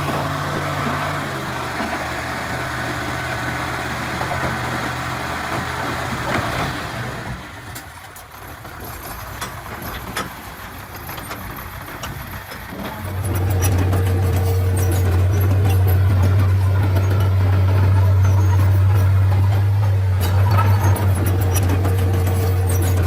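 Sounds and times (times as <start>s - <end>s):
bulldozer diesel engine running: 0.0s - 23.0s
scattered clicks and knocks: 7.7s - 23.0s.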